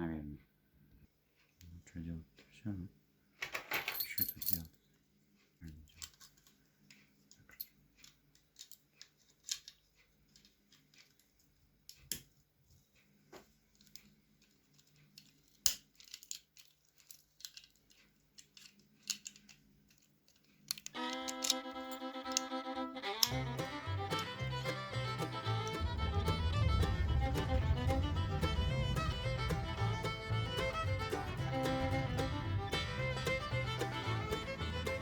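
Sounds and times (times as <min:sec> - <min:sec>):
metallic clicks and scrapes of lock: 0:05.9 - 0:11.2, 0:13.8 - 0:23.4
music: 0:21.0 - 0:35.0.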